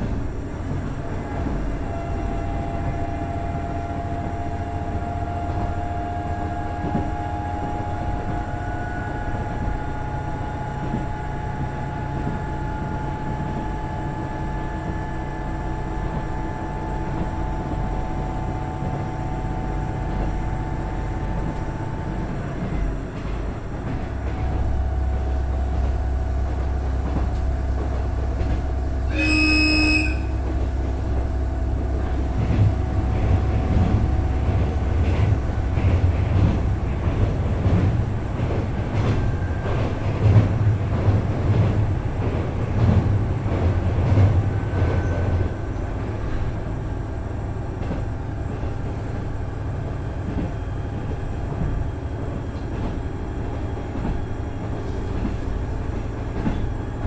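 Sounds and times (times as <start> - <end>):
low diesel engine rumble: 0.0 - 57.0
wheel and rail noise: 0.0 - 57.0
railcar horn blast: 1.1 - 41.1.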